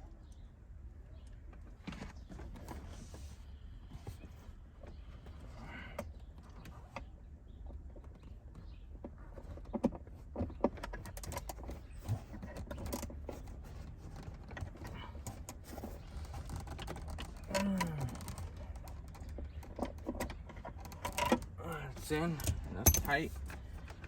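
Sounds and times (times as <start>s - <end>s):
hand tools clicking and knocking: 14.1s - 24.0s.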